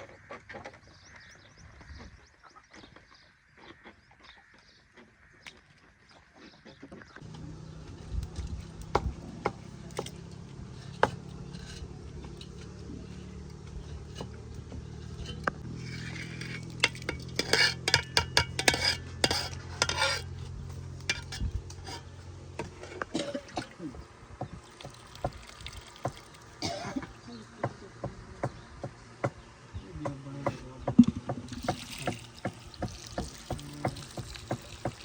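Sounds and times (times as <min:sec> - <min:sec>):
utensils clinking against a pot: 0:09.4 - 0:23.8.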